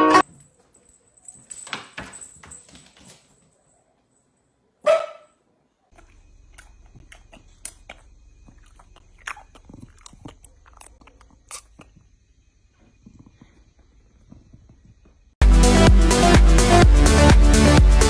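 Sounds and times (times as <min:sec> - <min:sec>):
dog barking: 0:04.7 - 0:11.2.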